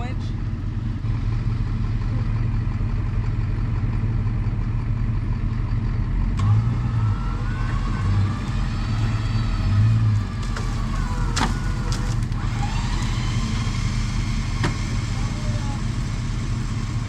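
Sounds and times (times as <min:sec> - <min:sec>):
vehicle engine rumbling: 0:00.0 - 0:17.0
faint high whine: 0:07.0 - 0:17.0.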